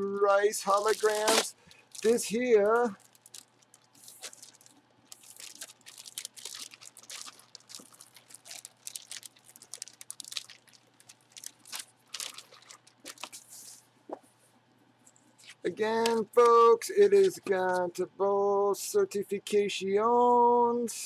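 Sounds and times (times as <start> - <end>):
packaging crinkling: 0.0 - 13.7.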